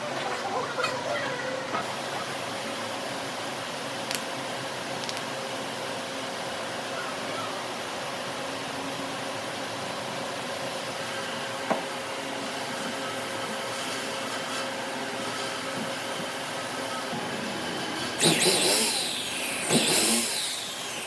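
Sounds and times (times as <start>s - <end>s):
machine motor whirring: 17.0s - 21.0s.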